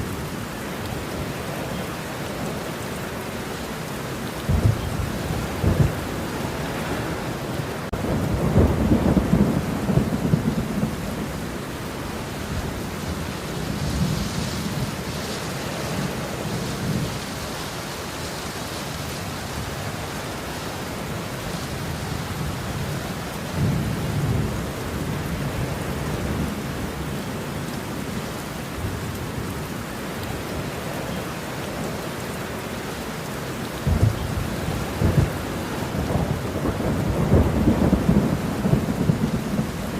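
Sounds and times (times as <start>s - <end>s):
steady rain falling: 0.0s - 39.9s
thunder rumbling low: 4.4s - 7.3s, 7.9s - 11.6s, 33.8s - 39.9s.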